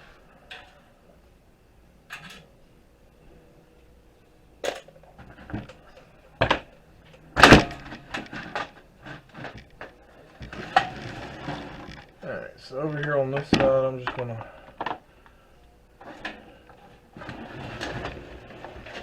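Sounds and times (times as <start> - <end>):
computer case clicks and clatter: 4.6 - 12.2, 16.0 - 19.0.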